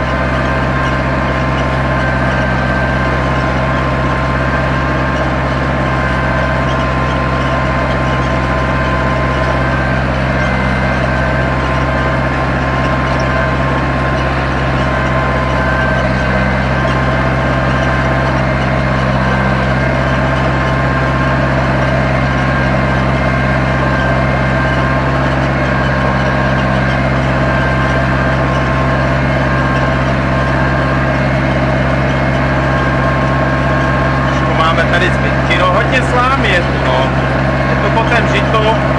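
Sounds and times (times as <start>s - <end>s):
tractor diesel engine under load: 0.0s - 38.9s.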